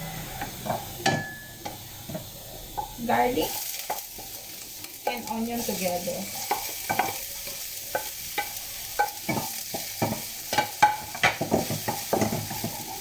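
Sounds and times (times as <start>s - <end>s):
garlic and onion sizzling in oil: 0.0s - 13.0s
utensil scraping a pan: 6.3s - 13.0s.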